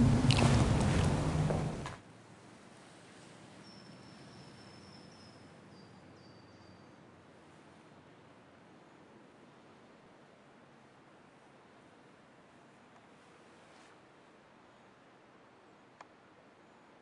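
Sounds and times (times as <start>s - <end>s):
small bird chirping: 3.6s - 7.0s.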